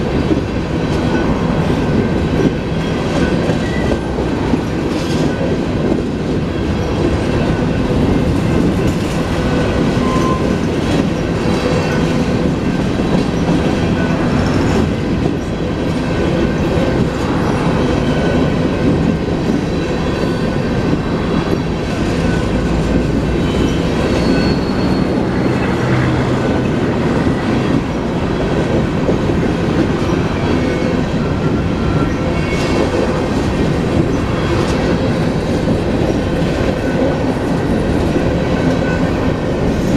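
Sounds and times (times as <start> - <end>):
train wheels clacking on rails: 0.0 - 39.9
thin wheel squeals: 23.5 - 25.2.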